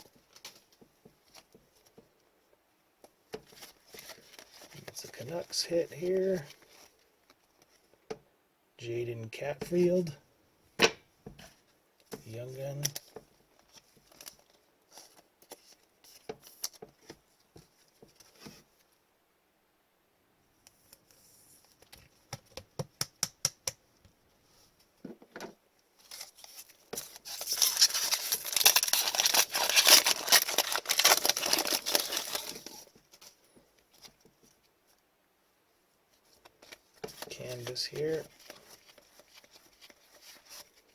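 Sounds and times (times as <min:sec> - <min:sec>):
wrapper crinkling and tearing: 0:26.0 - 0:34.1, 0:36.6 - 0:40.9.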